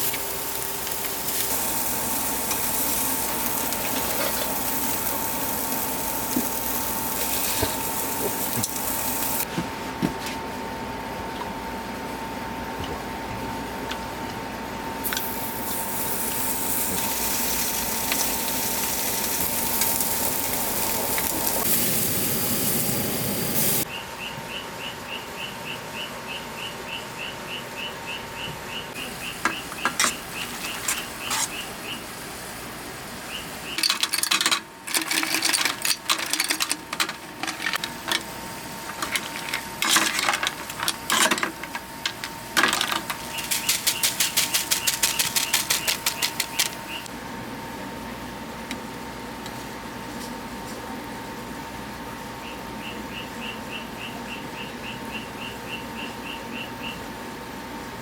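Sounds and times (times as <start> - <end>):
loud hiss: 15.2 - 23.8, 29.0 - 47.1
sharp clicks and crackles: 33.7 - 47.1.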